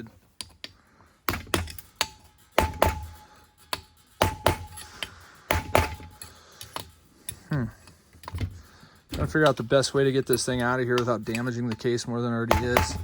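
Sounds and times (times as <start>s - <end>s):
tool knocking on metal: 12.5s - 13.0s.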